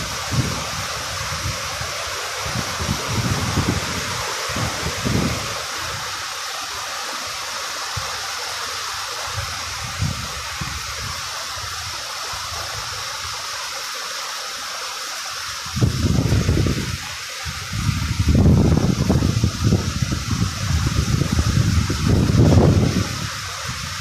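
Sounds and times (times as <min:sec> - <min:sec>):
wind rumble on microphone: 0:00.0 - 0:06.2, 0:09.3 - 0:13.1, 0:15.6 - 0:24.0
light rain falling: 0:00.0 - 0:24.0.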